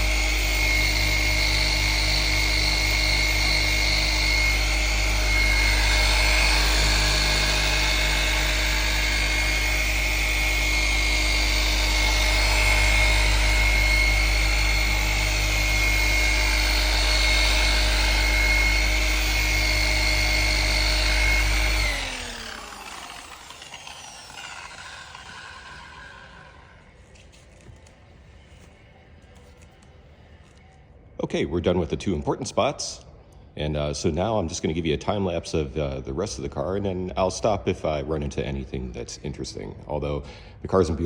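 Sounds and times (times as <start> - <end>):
electric polisher whining: 0.0 - 27.0.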